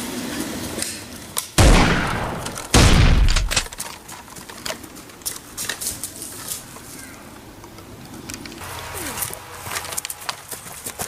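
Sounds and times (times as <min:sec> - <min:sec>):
loud bang: 0:01.6 - 0:03.8.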